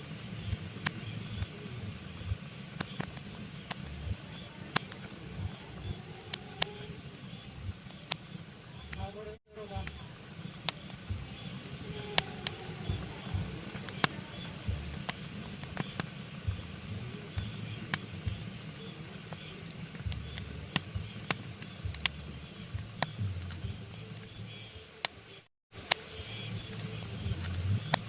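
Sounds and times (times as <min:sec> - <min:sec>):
fire hiss and rumble: 0:00.0 - 0:28.0
logs crackling and popping: 0:00.0 - 0:28.0.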